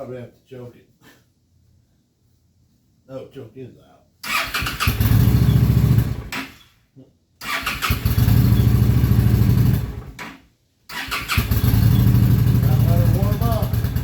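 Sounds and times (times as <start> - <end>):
motorcycle engine starting and dying: 4.2 - 6.6, 7.4 - 10.3, 10.9 - 14.0.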